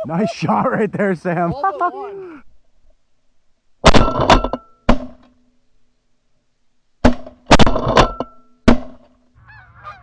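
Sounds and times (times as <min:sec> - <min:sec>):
shotgun blasts: 0:03.8 - 0:05.2
geese honking: 0:09.4 - 0:10.0.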